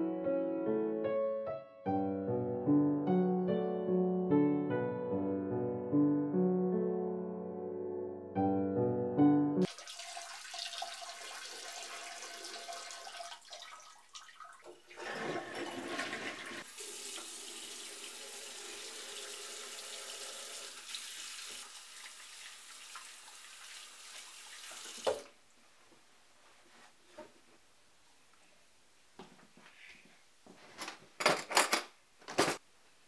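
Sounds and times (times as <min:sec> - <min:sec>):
tap water running into sink: 0:09.6 - 0:25.4.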